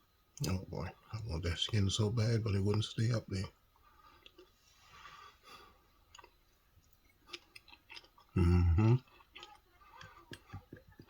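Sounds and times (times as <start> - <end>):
person chewing with mouth clicks: 4.0 - 4.6, 6.1 - 11.0
person humming mmm: 8.4 - 9.1.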